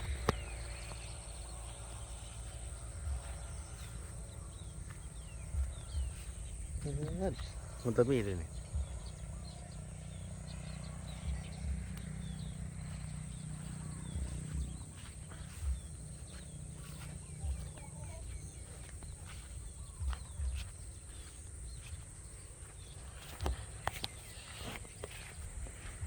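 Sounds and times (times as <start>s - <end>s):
low rumble: 0.0s - 23.1s
high insect drone: 0.0s - 26.0s
small birds chirping: 0.0s - 26.0s.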